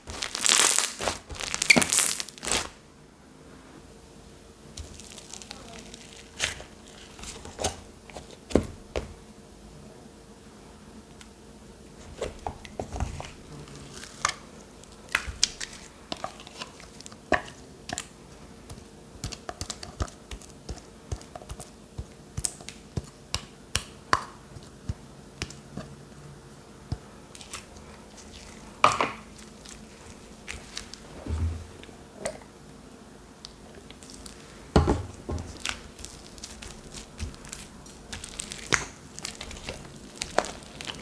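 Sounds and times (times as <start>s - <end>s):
hands squishing slime: 0.0s - 2.8s, 27.3s - 31.2s, 33.8s - 41.0s.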